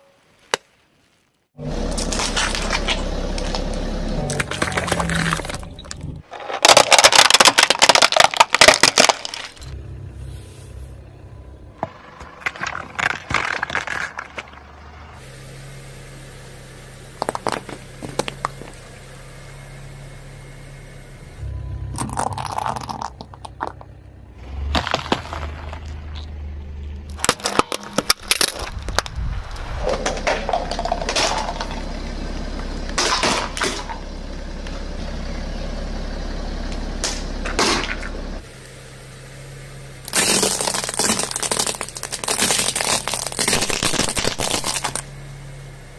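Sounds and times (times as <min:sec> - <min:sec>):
car tyres crushing objects: 0:00.4 - 0:10.1, 0:11.1 - 0:15.3, 0:16.1 - 0:38.8, 0:39.4 - 0:45.9
car engine humming: 0:01.5 - 0:45.9.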